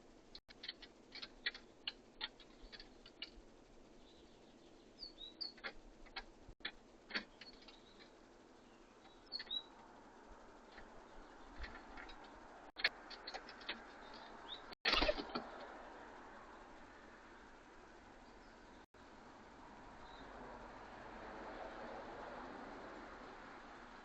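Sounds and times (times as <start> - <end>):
birds scuffling: 0.0 - 3.6, 5.5 - 16.0
birds pecking at feeder: 0.5 - 3.6, 5.4 - 8.3, 8.9 - 15.9
high bird chirps: 4.0 - 5.7, 7.3 - 9.8.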